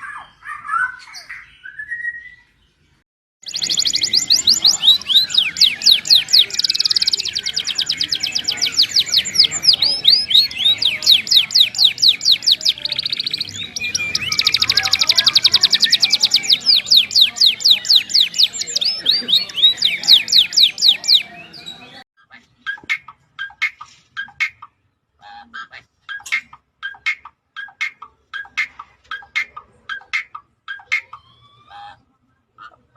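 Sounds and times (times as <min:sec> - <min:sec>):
songbird chirping: 0:00.0 - 0:25.2.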